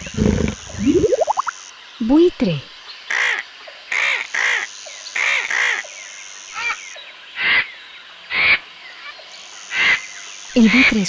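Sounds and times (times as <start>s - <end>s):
harsh caw-like bird calls: 3.1s - 8.6s, 9.6s - 10.3s.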